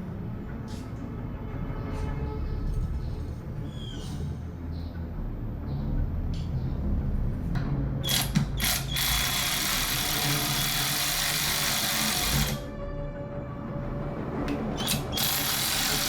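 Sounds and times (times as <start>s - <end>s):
ratchet wrench clicking: 8.0s - 12.6s, 14.8s - 16.0s.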